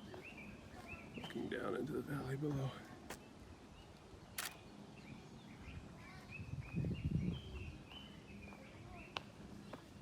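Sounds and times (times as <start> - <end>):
outdoor background noise: 0.0 - 10.0
small birds chirping: 0.0 - 10.0
sharp click: 4.4 - 4.6.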